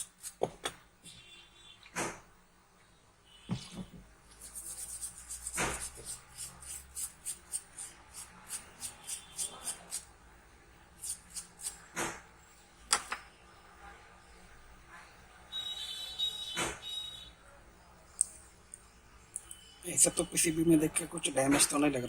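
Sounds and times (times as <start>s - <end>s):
brush scrubbing circuit board: 0.0s - 0.5s, 4.3s - 10.1s, 11.0s - 11.8s.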